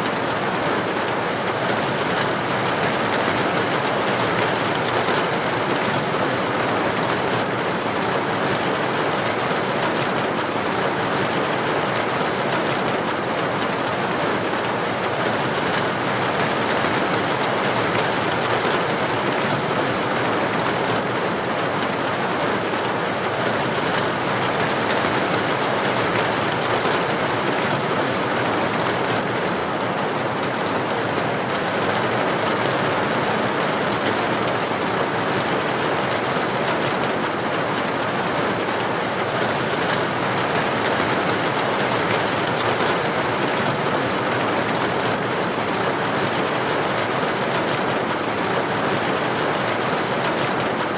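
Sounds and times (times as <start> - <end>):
heavy rain on street: 0.0 - 50.9.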